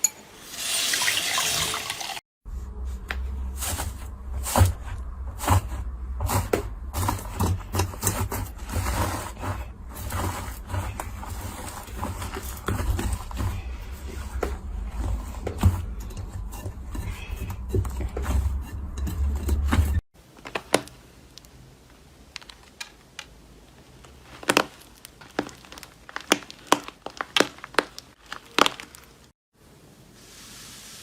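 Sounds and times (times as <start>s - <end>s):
slime crackling and popping: 22.3s - 29.3s.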